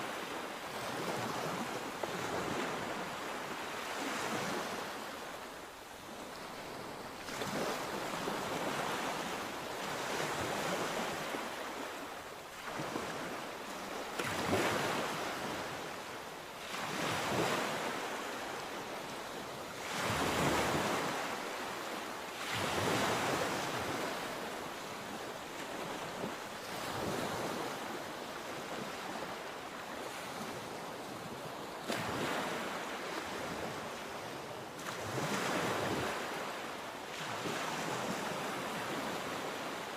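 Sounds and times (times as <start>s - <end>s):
sea waves breaking: 19.7s - 39.9s.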